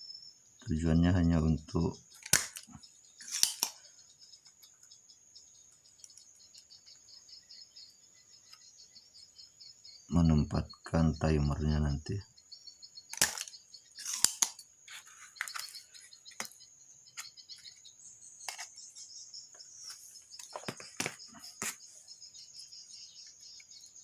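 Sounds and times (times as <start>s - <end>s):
high cricket-like trill: 0.0s - 24.0s
small tools clicking and scraping: 2.1s - 4.9s, 13.1s - 16.6s.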